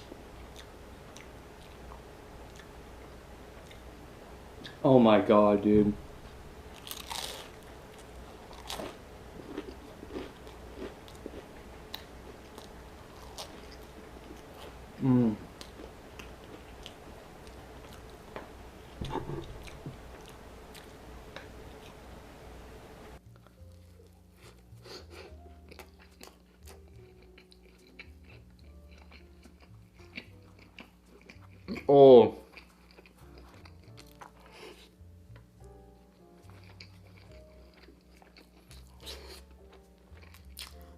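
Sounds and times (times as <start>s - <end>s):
crunchy food bite: 6.8s - 7.5s
wet chewing sounds: 6.8s - 14.8s, 25.4s - 34.9s, 36.4s - 40.9s.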